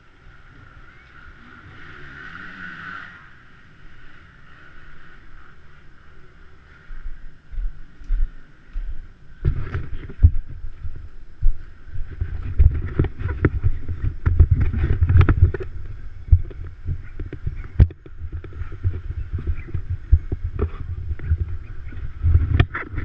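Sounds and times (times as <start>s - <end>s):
motocross bike engines racing: 0.0s - 10.7s, 11.6s - 23.0s
wind buffeting microphone: 6.5s - 23.0s.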